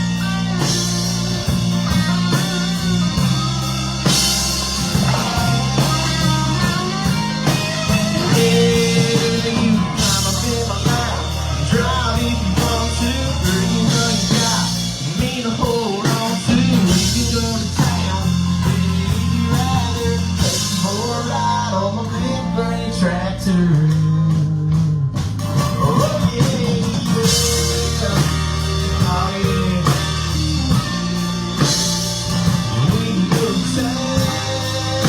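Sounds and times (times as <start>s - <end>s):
country rock song: 0.0s - 35.0s
man singing: 4.0s - 35.0s.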